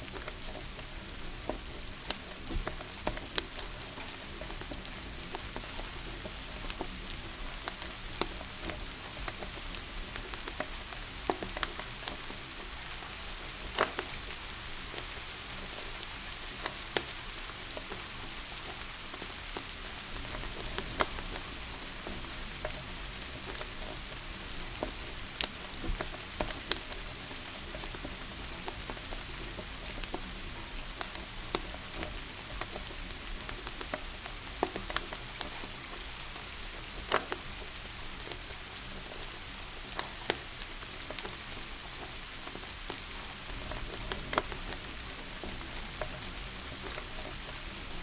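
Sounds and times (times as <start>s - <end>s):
steady rain: 0.0s - 48.0s
wood fire crackling and popping: 0.0s - 48.0s.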